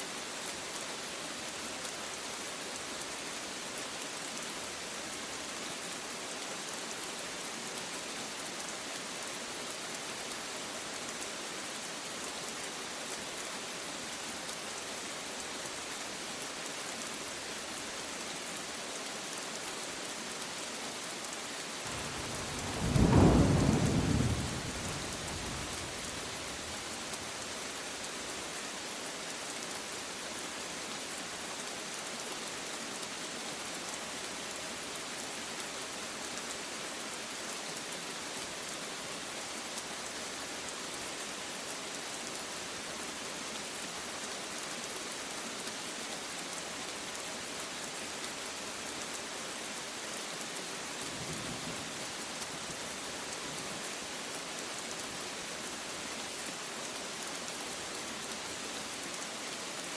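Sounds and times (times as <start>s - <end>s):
rain hissing: 21.8s - 28.6s
thunder clap rumbling: 21.9s - 26.2s.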